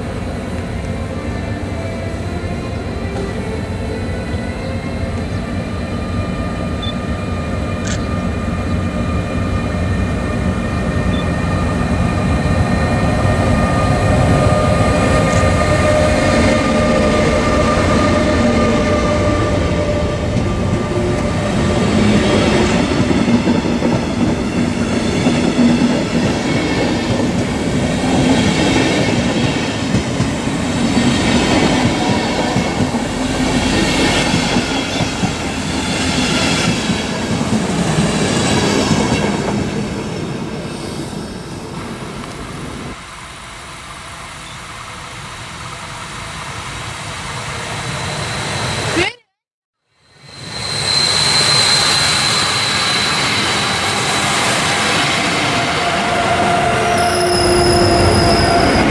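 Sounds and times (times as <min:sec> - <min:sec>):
metallic wheel ringing and squeal: 0:50.2 - 0:54.4, 0:56.8 - 0:58.9.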